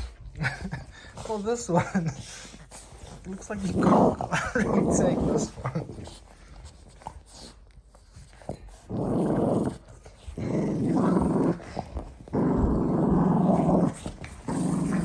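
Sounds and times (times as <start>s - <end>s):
dog growling: 2.9s - 6.3s, 8.4s - 15.0s.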